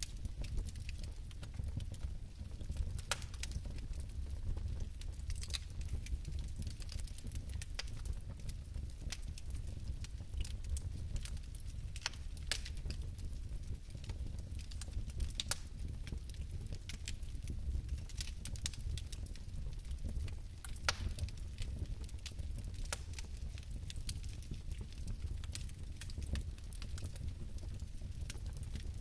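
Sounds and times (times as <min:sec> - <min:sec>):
fireplace flames crackling: 0:00.0 - 0:29.0.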